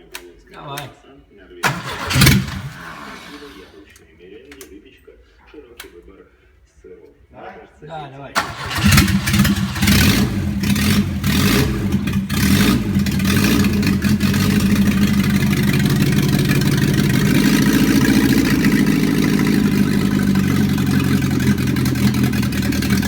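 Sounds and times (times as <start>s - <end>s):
car engine running: 8.4s - 23.0s.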